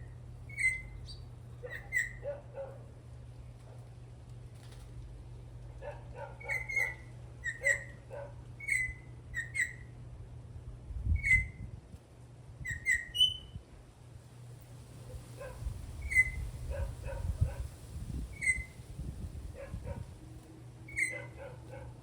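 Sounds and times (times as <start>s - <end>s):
bird whistled calls: 0.5s - 2.2s, 6.4s - 8.0s, 8.6s - 9.9s, 11.2s - 11.6s, 12.6s - 13.6s, 16.0s - 16.5s, 18.3s - 18.8s, 20.9s - 21.3s.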